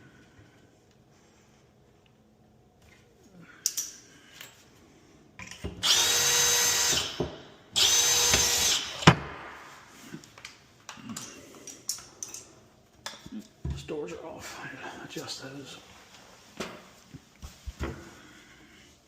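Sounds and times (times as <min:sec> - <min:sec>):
power drill whining: 0:05.8 - 0:09.1.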